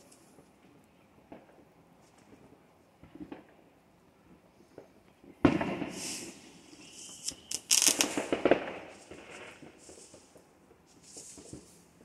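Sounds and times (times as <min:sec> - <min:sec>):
firework bang: 0:05.4 - 0:10.4
rapid firecracker cracks: 0:05.4 - 0:11.9.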